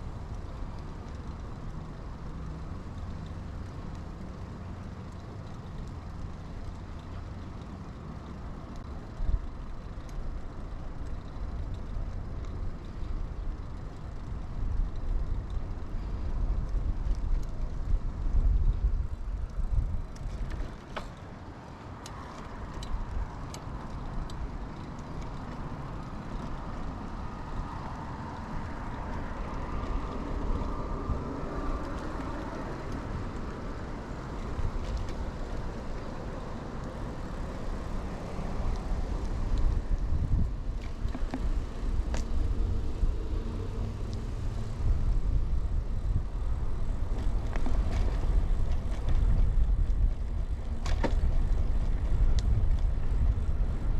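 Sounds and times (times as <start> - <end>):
bike tyres rolling on pavement: 0.0 - 53.9
sharp bike clicks: 0.1 - 43.2
wind buffeting microphone: 14.3 - 20.8, 22.8 - 53.9.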